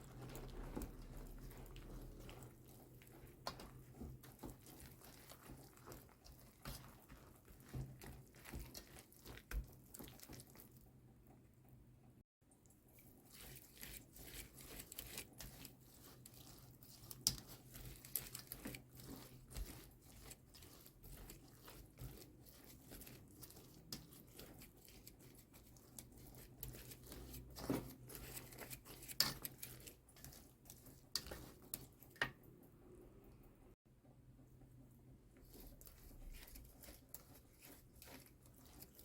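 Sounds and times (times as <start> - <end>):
crinkling and crackling: 0.0 - 11.4, 13.0 - 32.4.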